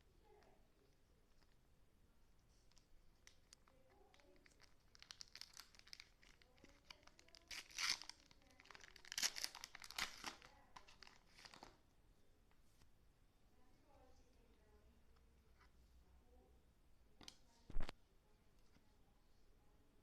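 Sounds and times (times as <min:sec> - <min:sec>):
packaging crinkling and tearing: 0:03.2 - 0:11.8.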